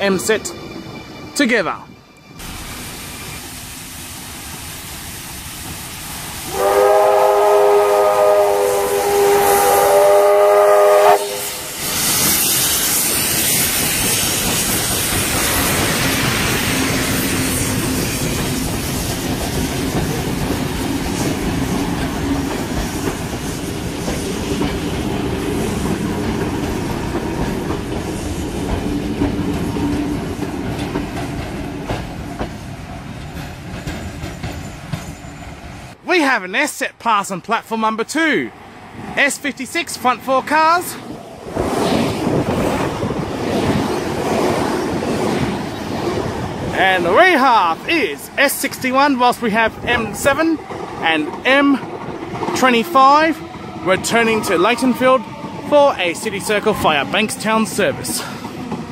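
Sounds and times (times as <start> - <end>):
train wheels on rails: 0.0 - 36.0, 38.8 - 58.9
electric train horn: 6.5 - 11.8.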